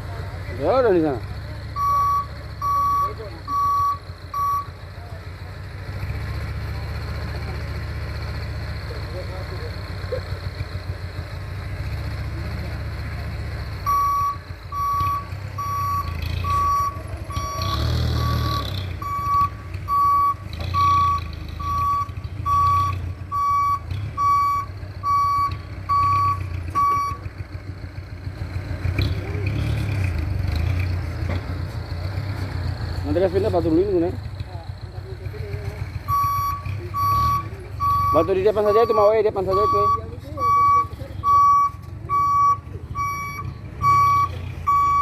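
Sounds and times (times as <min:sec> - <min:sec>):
truck engine running low: 0:00.0 - 0:45.0
truck reverse alarm beeping: 0:01.6 - 0:04.9, 0:13.8 - 0:27.4, 0:36.0 - 0:45.0.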